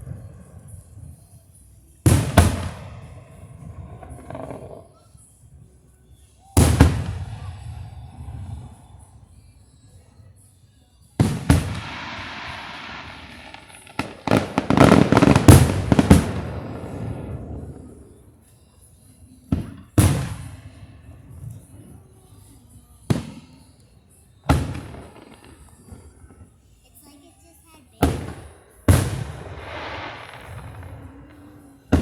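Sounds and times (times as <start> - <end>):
fireworks bangs: 0.0 - 1.3, 2.0 - 5.0, 6.6 - 9.0, 11.2 - 18.3, 19.5 - 22.4, 23.1 - 23.7, 24.4 - 26.5, 27.8 - 32.0
fireworks crackling hiss: 0.0 - 32.0
fireworks booms: 2.0 - 4.9, 6.6 - 9.0, 11.2 - 18.3, 19.5 - 21.9, 23.1 - 23.7, 24.4 - 26.5, 27.9 - 32.0.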